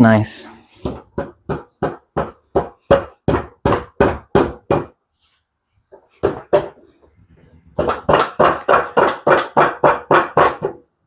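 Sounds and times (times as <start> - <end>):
knocking on engine parts: 0.8 - 5.0, 7.7 - 10.9.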